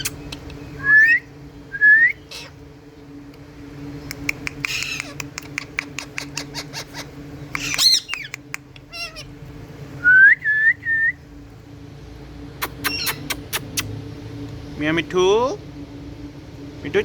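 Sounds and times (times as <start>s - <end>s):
parakeet squawk: 0.0s - 0.4s, 2.1s - 2.6s, 4.6s - 9.4s, 12.6s - 13.8s
parakeets calling and chattering: 0.0s - 10.0s, 11.3s - 16.1s
low hum: 0.0s - 17.0s
sharp clicks: 4.1s - 6.4s.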